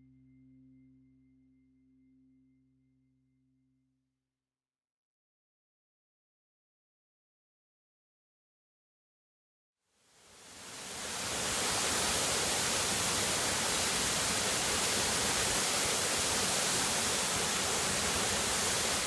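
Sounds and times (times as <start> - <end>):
waterfall rushing hiss: 10.1 - 19.0.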